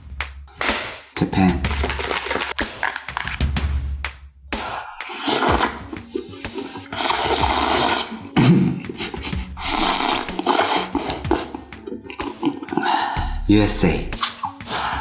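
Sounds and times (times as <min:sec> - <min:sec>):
noodles slurped and chewed: 0:05.0 - 0:13.0.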